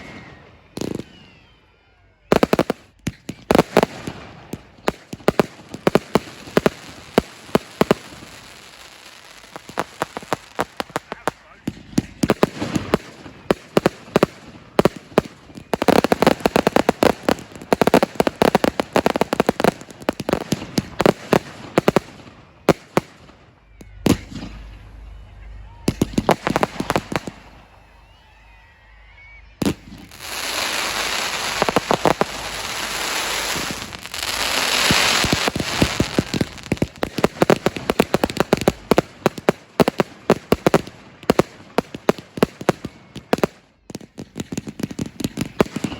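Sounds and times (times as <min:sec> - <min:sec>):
fireworks bangs: 0:00.0 - 0:45.9
fireworks crackling: 0:00.0 - 0:45.9.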